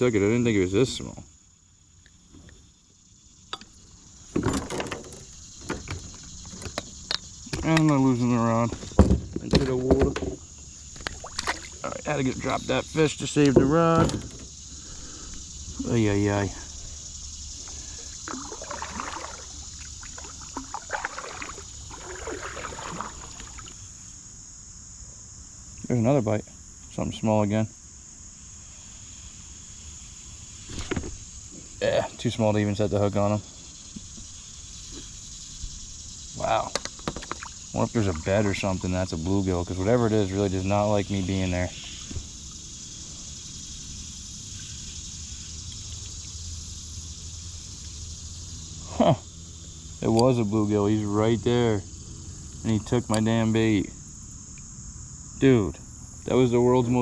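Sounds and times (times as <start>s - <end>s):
insects buzzing: 0.0s - 57.0s
small knocks on kayak: 3.5s - 8.0s, 8.7s - 12.6s, 13.4s - 14.5s, 17.6s - 23.8s, 30.7s - 31.2s, 36.7s - 37.6s
water splashing and dripping: 10.9s - 12.6s, 17.6s - 23.8s.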